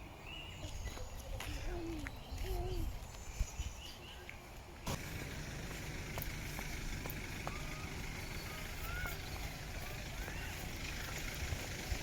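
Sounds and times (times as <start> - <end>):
steady low rumble: 4.9 - 12.0
faint bird chirps: 7.4 - 11.3.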